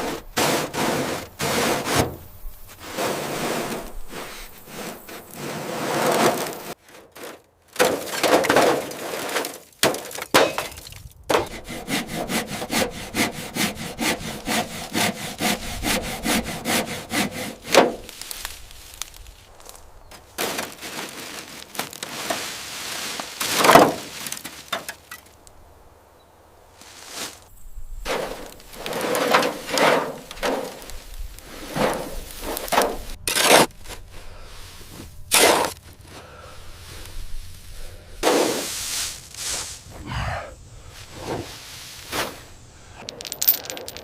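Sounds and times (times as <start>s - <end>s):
hand saw sawing: 0.0s - 2.2s, 11.3s - 18.0s, 28.1s - 30.9s.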